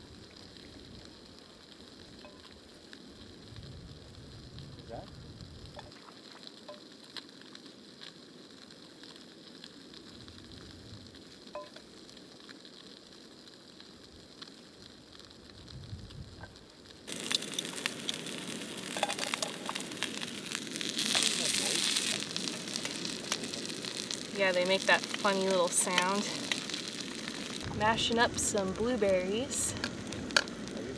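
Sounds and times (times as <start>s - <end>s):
food sizzling in a pan: 0.0s - 30.9s
small oil pops: 29.8s - 30.8s.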